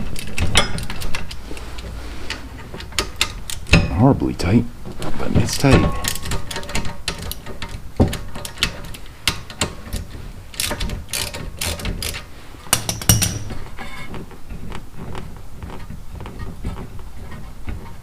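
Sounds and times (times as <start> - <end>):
metal tools knocking: 5.4 - 14.0
hand ratchet clicking: 6.0 - 13.5.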